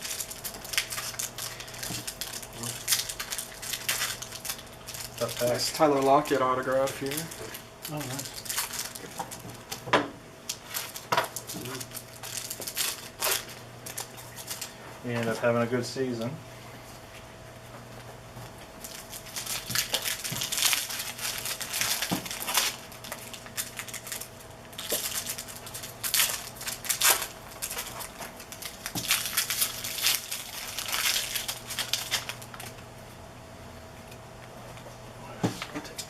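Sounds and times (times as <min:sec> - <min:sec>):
card pack wrappers tearing: 0:00.0 - 0:09.8, 0:10.5 - 0:14.8, 0:18.8 - 0:32.7
faint electrical hum: 0:00.0 - 0:36.0.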